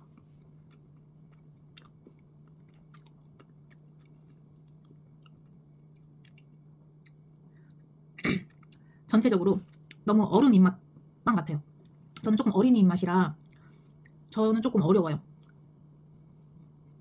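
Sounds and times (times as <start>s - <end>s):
faint chewing: 0.0s - 9.0s, 13.4s - 14.3s
low steady hum: 0.0s - 17.0s.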